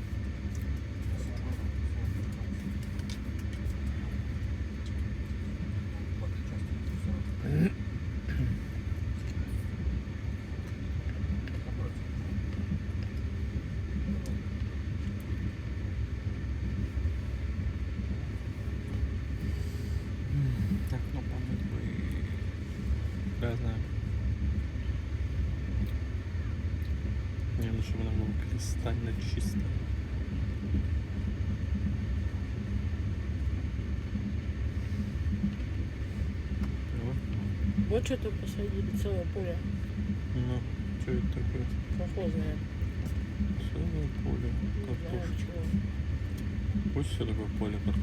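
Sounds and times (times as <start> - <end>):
moving train rumble: 34.2 - 48.0.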